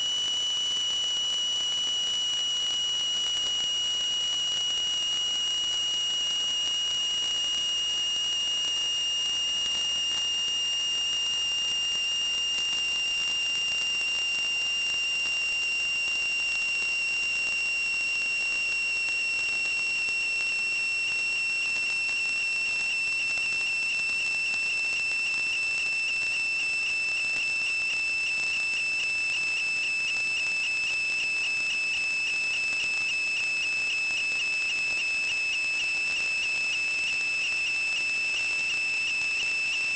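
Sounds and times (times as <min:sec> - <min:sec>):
high-pitched whistling tone: 0:13.0 - 0:39.9.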